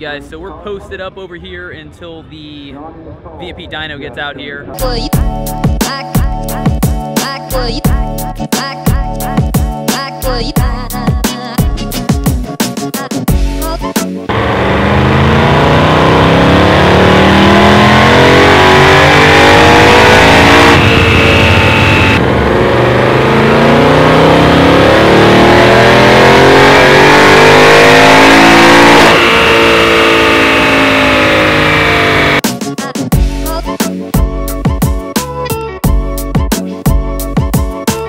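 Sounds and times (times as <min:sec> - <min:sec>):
car engine revving at full throttle: 0:14.3 - 0:32.4.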